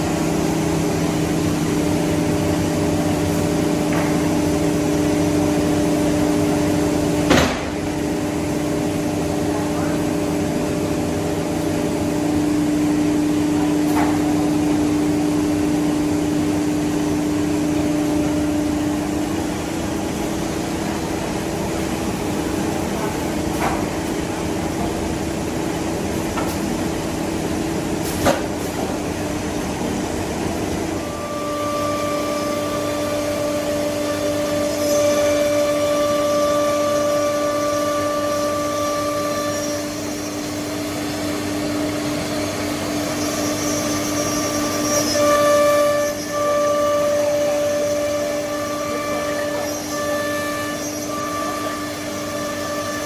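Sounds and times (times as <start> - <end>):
higher machine whine: 28.8 - 53.0
cnc router whine: 28.9 - 53.0.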